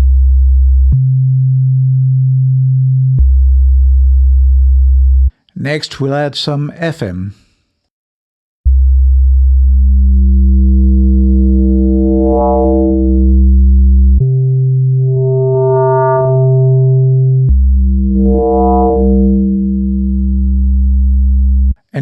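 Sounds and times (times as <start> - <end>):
synthesizer bass notes: 9.6 - 21.8.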